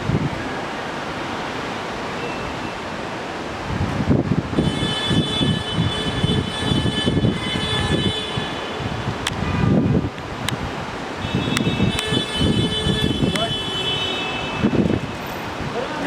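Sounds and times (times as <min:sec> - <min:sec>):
wind buffeting microphone: 0:00.0 - 0:00.7, 0:03.4 - 0:16.0.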